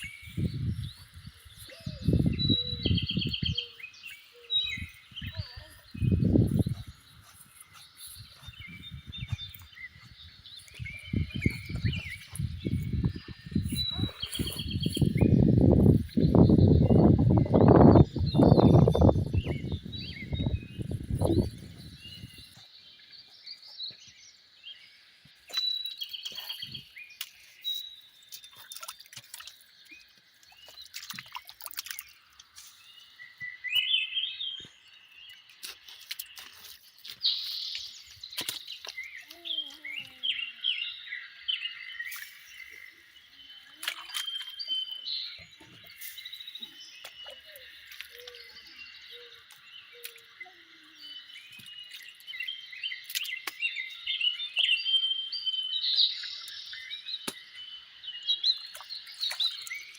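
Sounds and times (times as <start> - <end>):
small birds chirping and trilling: 0.0 - 59.9.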